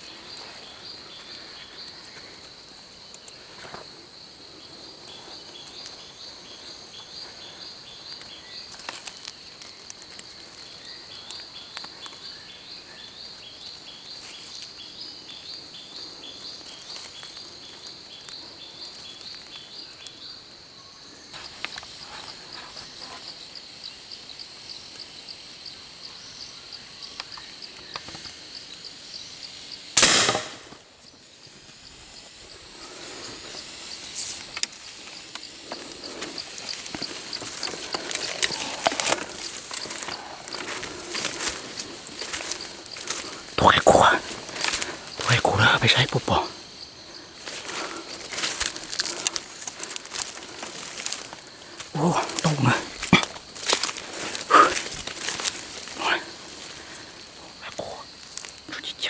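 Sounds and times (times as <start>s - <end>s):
insects droning and chirping: 0.0s - 59.0s
loud gunshot: 30.0s - 30.7s.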